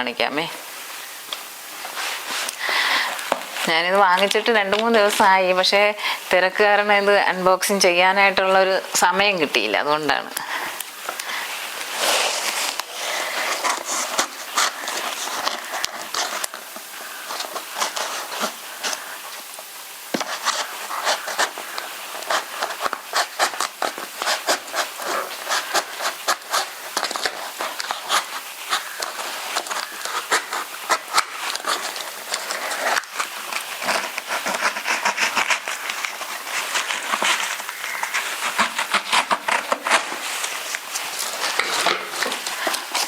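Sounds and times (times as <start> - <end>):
cardboard and plastic crackling: 10.8 - 43.0.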